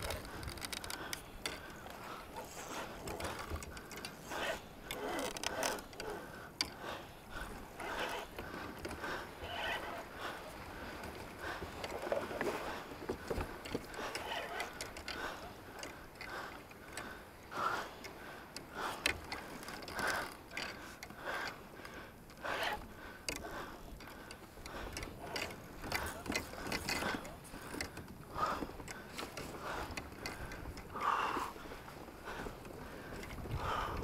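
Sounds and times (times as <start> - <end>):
fishing reel clicking and ratcheting: 0.0 - 1.7, 2.5 - 6.8.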